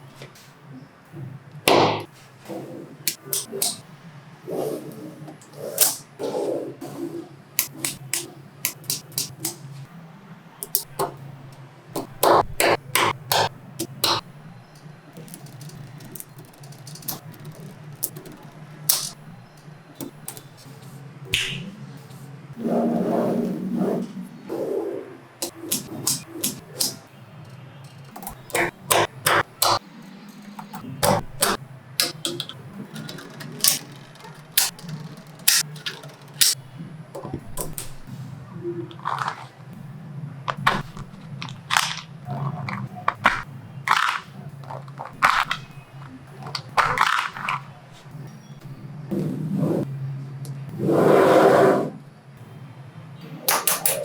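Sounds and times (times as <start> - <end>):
magnetic balls clicking together: 3.1 - 3.9, 5.4 - 6.1, 7.6 - 9.9, 10.6 - 22.1, 25.4 - 38.2, 40.5 - 48.4, 53.5 - 54.0.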